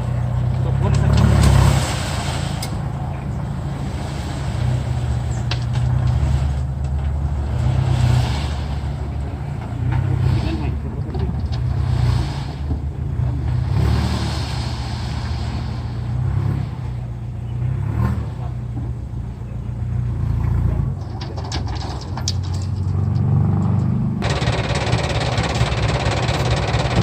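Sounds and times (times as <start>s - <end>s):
truck engine droning: 0.0s - 27.0s
sharp clicks and rattles: 9.4s - 12.0s, 20.9s - 27.0s.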